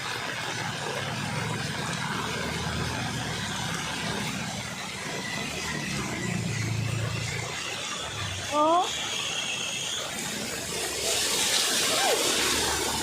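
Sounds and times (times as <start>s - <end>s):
vehicle engine running: 0.4s - 13.0s.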